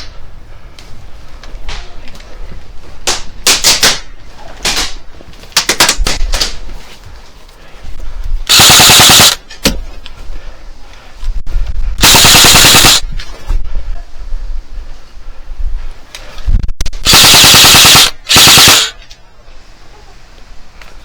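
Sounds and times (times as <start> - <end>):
airsoft gun shots: 8.5 - 9.4, 12.0 - 13.0
full-auto airsoft burst: 8.5 - 9.4, 12.0 - 13.0, 17.0 - 19.0.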